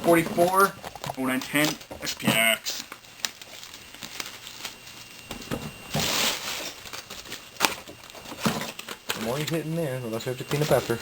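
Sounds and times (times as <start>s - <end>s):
plastic wrapping crinkling: 0.0s - 11.0s
plastic wrapping ripping: 1.3s - 9.6s.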